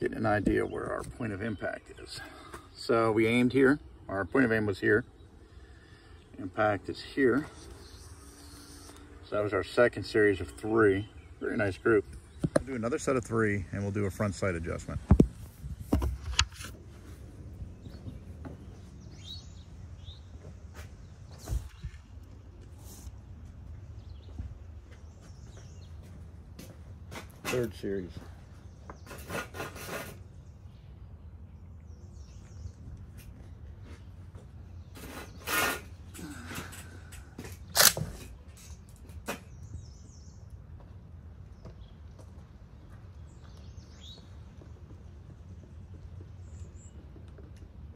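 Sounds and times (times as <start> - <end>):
faint birds chirping: 0.0 - 47.9
bird chirps: 17.7 - 22.5, 23.9 - 26.2, 42.8 - 45.0.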